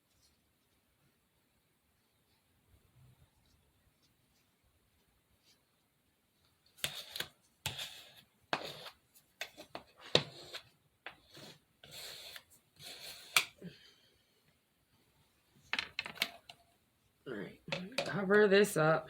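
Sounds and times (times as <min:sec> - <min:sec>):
scraping on a table: 0:06.8 - 0:13.6.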